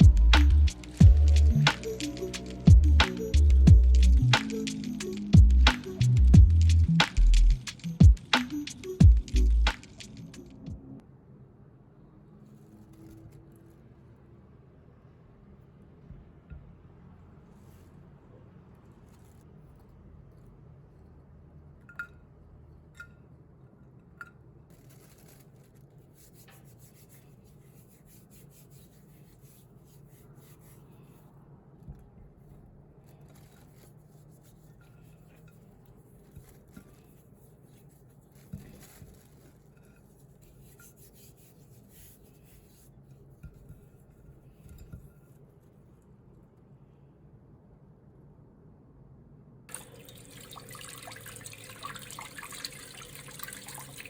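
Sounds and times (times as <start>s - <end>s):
light rubbing: 31.9s - 45.9s.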